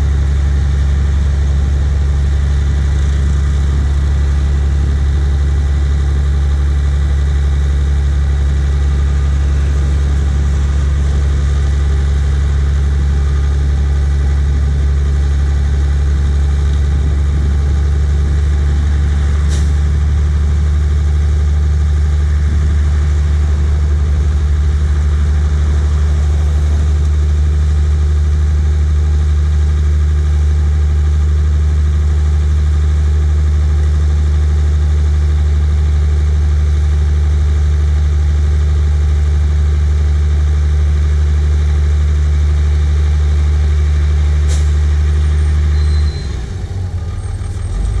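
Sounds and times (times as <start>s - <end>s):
diesel truck engine running: 0.0s - 48.0s
brief click: 44.5s - 44.7s.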